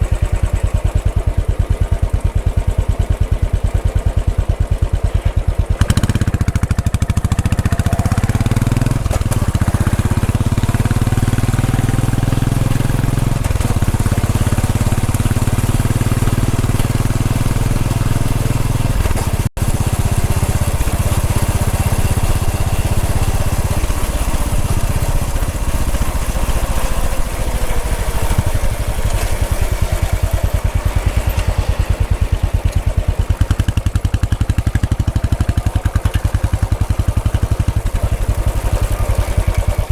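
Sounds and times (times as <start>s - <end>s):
single-cylinder motorcycle engine running: 0.0s - 39.9s.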